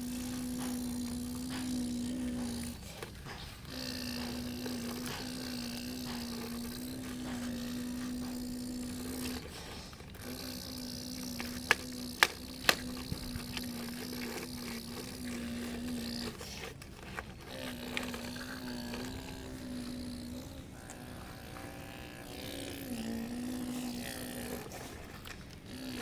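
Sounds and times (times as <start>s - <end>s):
small electric motor humming: 0.0s - 26.0s
plastic clicks: 0.1s - 20.6s.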